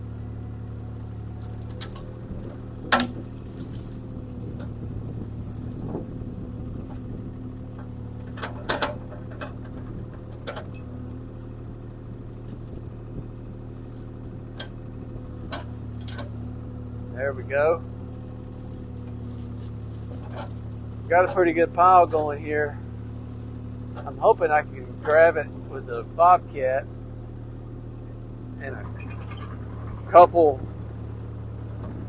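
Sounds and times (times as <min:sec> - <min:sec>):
excavator engine running: 0:00.0 - 0:32.0
sharp knocks and cracks: 0:01.3 - 0:04.0.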